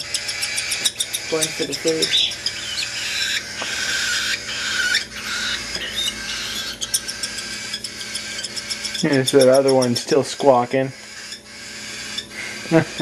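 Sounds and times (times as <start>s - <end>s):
cockatiel chicks begging calls: 0.0s - 13.0s.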